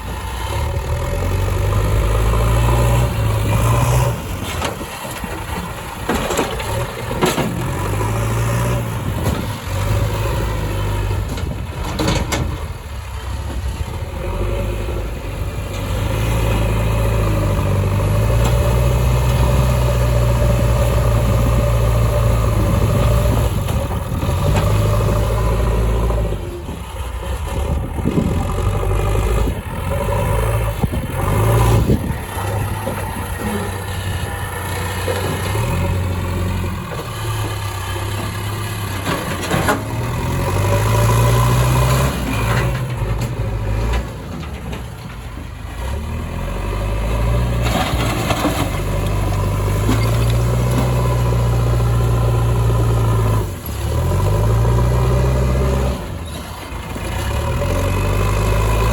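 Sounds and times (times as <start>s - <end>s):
heavy diesel engines revving: 0.0s - 58.9s.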